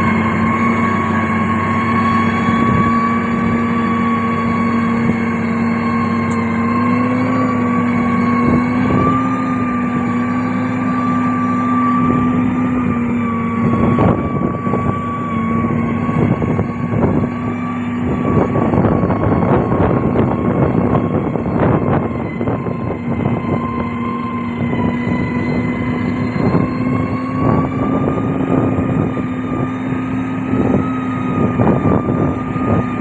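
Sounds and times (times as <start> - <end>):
heavy diesel machine running: 0.0 - 33.0.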